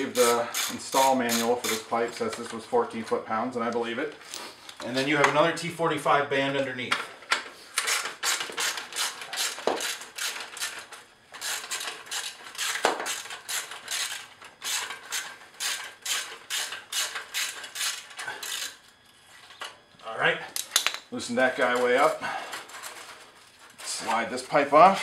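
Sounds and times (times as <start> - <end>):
hand ratchet clicking: 0.0 - 1.8, 7.8 - 18.8.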